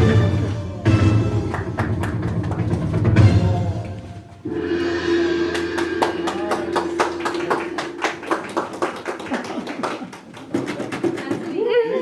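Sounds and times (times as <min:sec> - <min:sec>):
steady ringing tone: 0:04.5 - 0:08.7.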